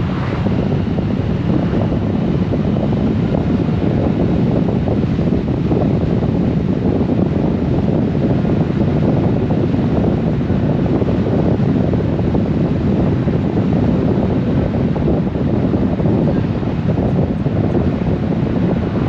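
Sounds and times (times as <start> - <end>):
wind rushing on microphone: 0.0 - 19.0.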